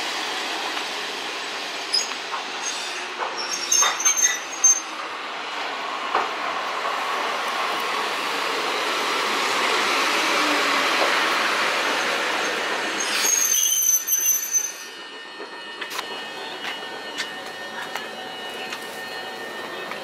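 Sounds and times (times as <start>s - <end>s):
electric train running on rails: 0.0s - 20.0s
high-pitched metal squeal: 1.9s - 5.0s, 12.4s - 19.8s.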